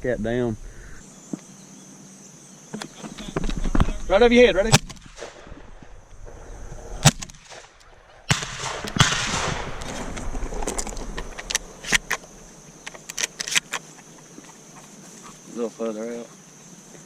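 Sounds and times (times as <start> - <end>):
shotgun blasts: 4.6 - 5.7, 7.0 - 10.7.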